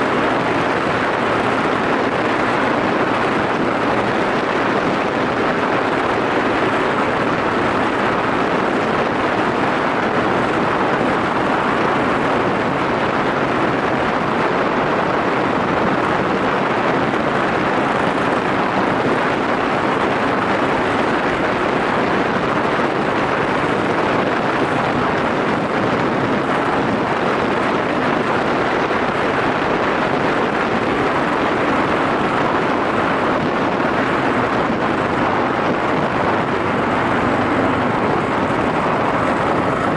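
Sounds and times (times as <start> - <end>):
motorcycle engine humming: 0.0 - 39.9
wind rush over microphone: 0.0 - 39.9.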